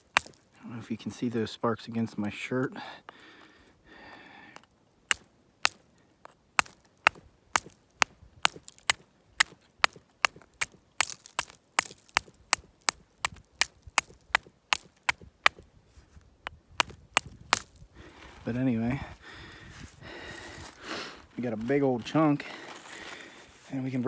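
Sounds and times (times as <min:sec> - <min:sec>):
steel striking quartz: 0:00.0 - 0:00.6, 0:04.6 - 0:15.6.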